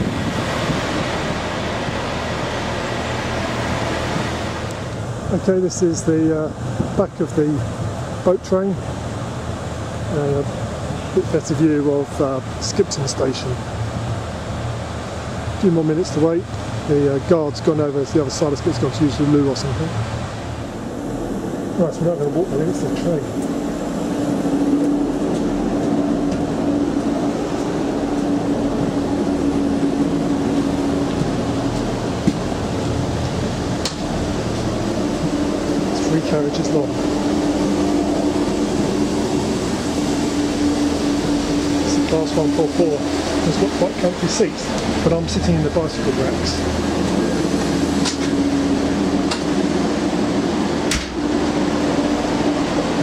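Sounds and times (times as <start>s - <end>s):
railcar diesel engine drone: 0.0s - 53.0s
steady hum: 0.0s - 53.0s
train running noise inside: 0.0s - 53.0s
train knocks and clanks: 24.7s - 40.0s, 46.4s - 48.5s, 49.2s - 49.8s, 50.8s - 52.0s.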